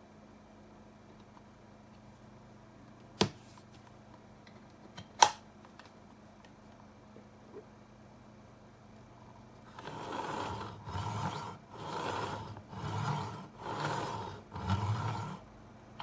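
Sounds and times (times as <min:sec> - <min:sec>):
scraping strokes: 0:09.7 - 0:15.4.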